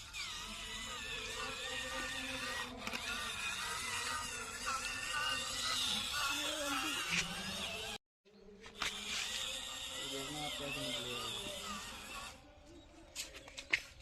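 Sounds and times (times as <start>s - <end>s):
small electric motor whirring: 0.0s - 8.0s, 8.6s - 14.0s.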